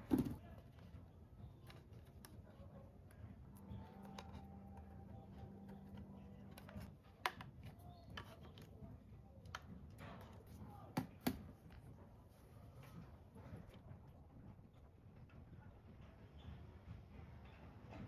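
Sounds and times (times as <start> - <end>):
faint hum: 2.5 - 9.4.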